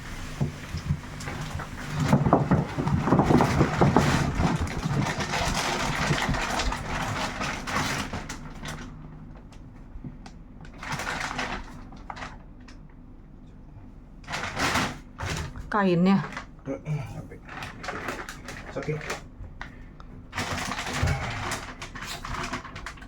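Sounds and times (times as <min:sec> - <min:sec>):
plastic wrap crinkling: 0:01.9 - 0:09.0, 0:10.7 - 0:12.6, 0:17.4 - 0:23.0.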